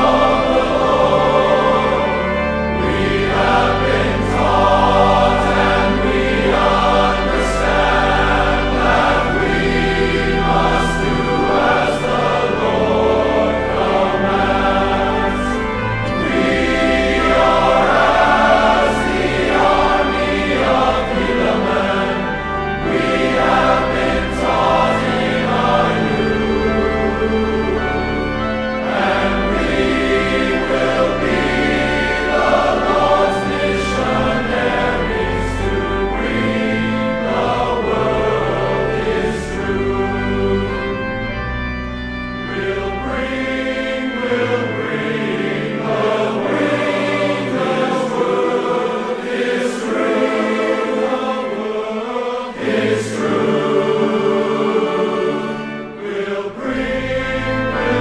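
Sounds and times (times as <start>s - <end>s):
choir singing sacred music: 0.0s - 58.0s
instrumental accompaniment: 0.0s - 58.0s.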